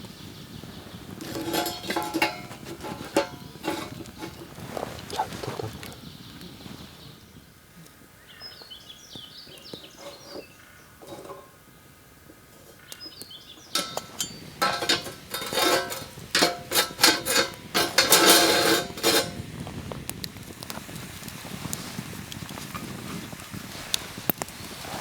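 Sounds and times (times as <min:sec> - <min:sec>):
metal cookware clattering: 0:01.1 - 0:04.7, 0:09.9 - 0:11.6, 0:13.6 - 0:19.4.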